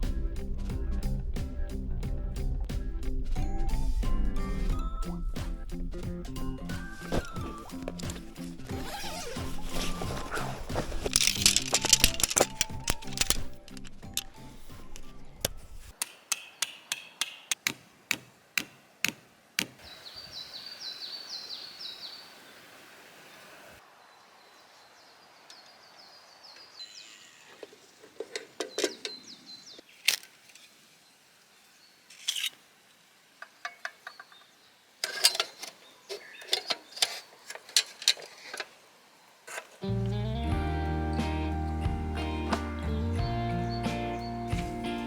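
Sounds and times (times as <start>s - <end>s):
bird chirping: 3.3s - 17.7s, 19.6s - 22.7s, 23.4s - 29.9s, 33.4s - 34.8s, 35.4s - 37.2s, 42.7s - 45.0s
sharp knocks and taps: 16.0s - 19.8s.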